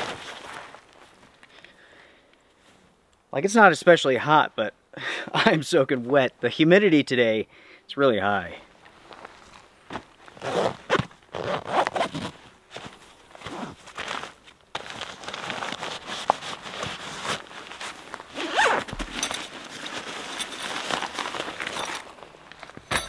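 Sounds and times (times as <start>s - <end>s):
nylon fabric rustling: 0.0s - 1.3s, 9.0s - 22.8s
backpack zippers pulled open: 10.4s - 12.3s, 13.4s - 13.8s, 18.3s - 22.1s.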